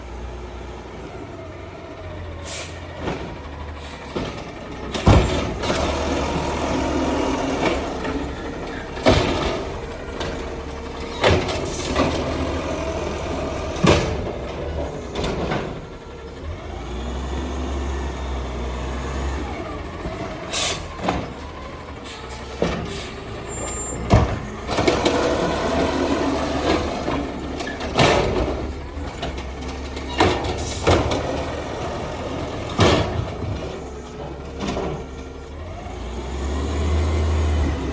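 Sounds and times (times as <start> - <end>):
garbage truck running: 0.0 - 37.9
sharp clanks and bangs: 3.0 - 6.6, 7.4 - 16.0, 20.0 - 35.4.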